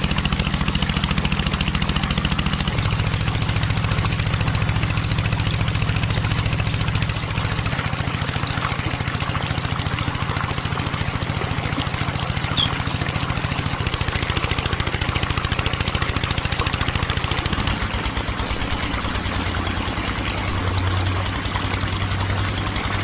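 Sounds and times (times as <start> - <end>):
small engine idling: 0.0 - 23.0
short sharp chirp: 12.6 - 12.8.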